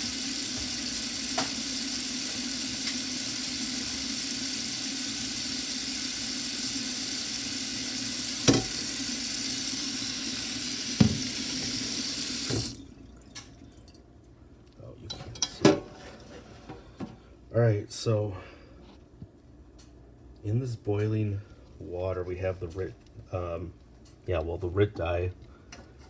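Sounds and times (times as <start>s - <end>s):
tap running into sink: 0.1s - 4.7s, 5.8s - 12.8s.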